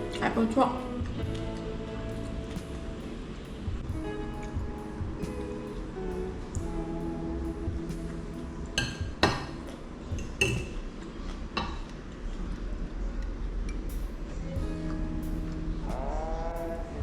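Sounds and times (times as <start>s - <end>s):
cutlery clinking on a plate: 10.2s - 10.8s.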